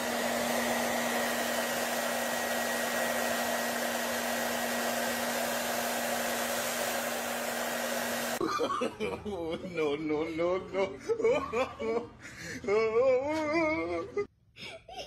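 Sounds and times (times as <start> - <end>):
small motor blower running: 0.0 - 8.4.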